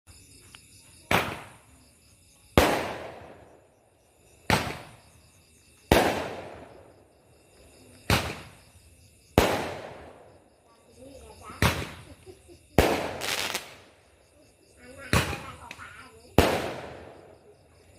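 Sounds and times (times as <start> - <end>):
fireworks bangs with echo: 1.1 - 1.6, 2.5 - 3.7, 4.4 - 5.1, 5.9 - 6.9, 8.0 - 8.6, 9.3 - 10.4, 11.5 - 14.0, 15.0 - 17.4.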